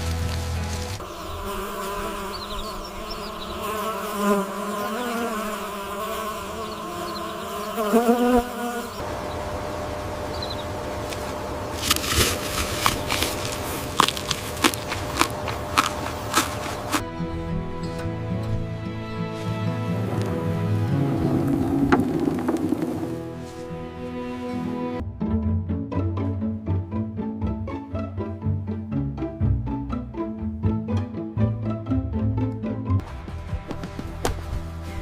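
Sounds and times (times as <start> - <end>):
flying insect buzzing: 0.0 - 9.4.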